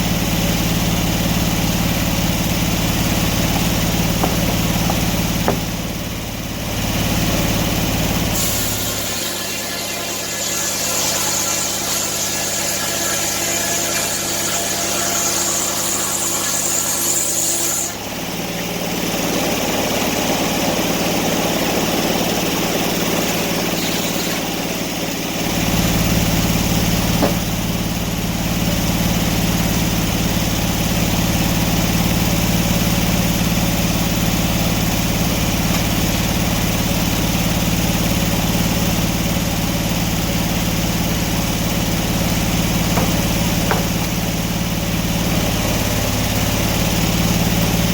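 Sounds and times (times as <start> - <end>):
engine running: 0.0 - 47.9
high whine: 1.4 - 31.1.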